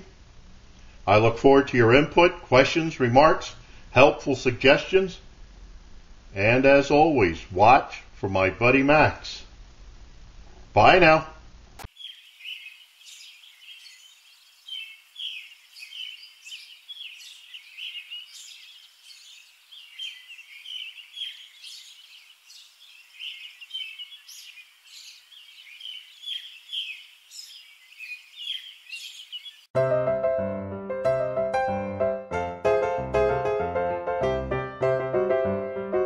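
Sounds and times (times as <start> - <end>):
small birds chirping: 11.8 - 29.7.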